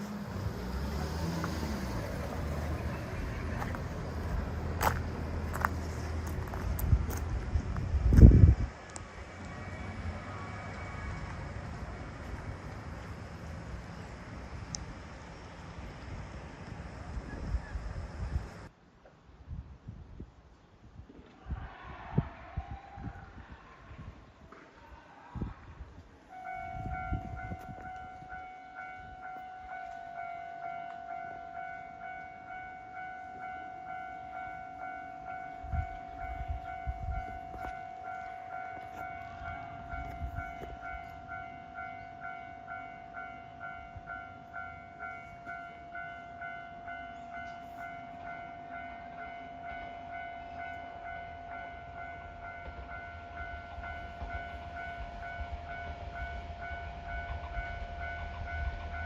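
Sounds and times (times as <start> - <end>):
level crossing warning bell: 26.3 - 59.0.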